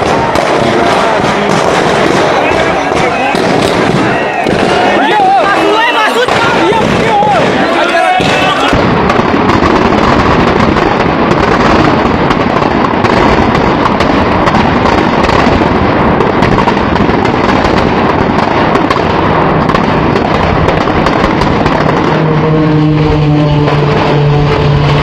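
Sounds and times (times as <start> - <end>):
firecrackers crackling: 0.0 - 25.0.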